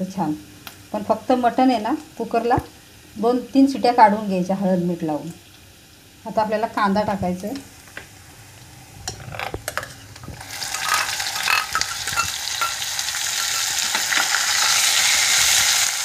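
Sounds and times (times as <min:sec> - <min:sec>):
onion sizzling in hot oil: 0:00.0 - 0:16.0
utensils clicking against pan: 0:09.1 - 0:14.8.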